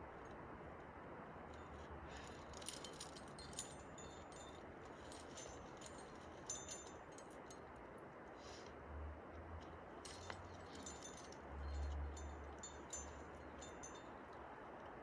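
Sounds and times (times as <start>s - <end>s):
metal climbing gear clinking: 1.4s - 8.0s, 9.6s - 15.0s.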